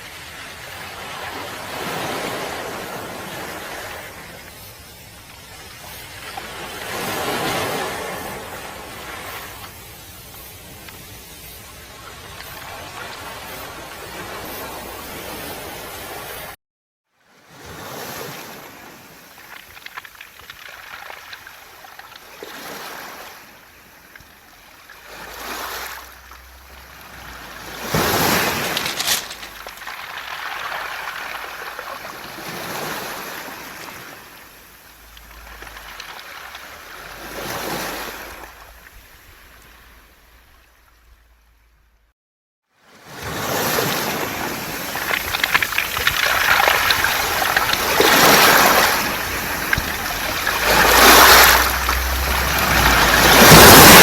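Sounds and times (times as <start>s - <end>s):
waves washing on pebbles: 0.0s - 16.6s, 17.4s - 39.9s, 43.0s - 54.0s
pebbles rattling: 19.4s - 21.6s, 26.2s - 32.1s, 44.5s - 54.0s.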